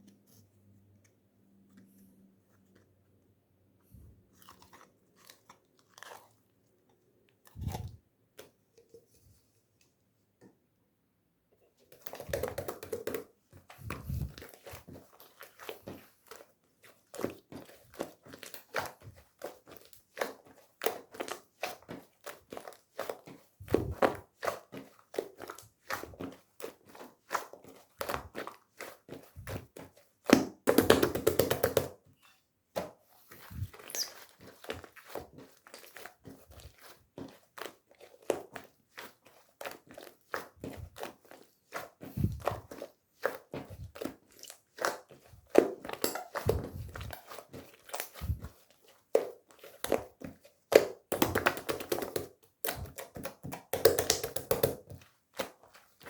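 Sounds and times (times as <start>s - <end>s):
hands handling squishy toy: 0.0s - 9.9s.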